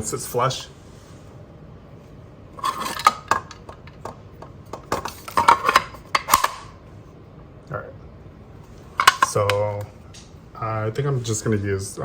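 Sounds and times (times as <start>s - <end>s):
plastic and metal parts clattering: 4.9s - 6.6s.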